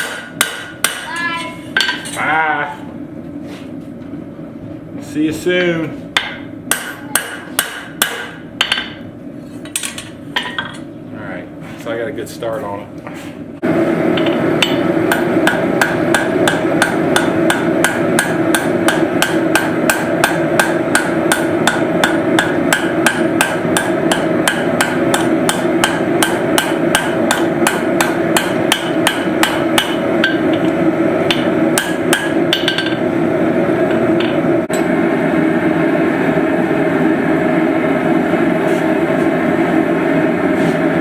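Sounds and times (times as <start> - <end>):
hammer striking steel on anvil: 0.0 - 1.2, 6.2 - 9.0, 14.2 - 33.0, 33.9 - 34.9.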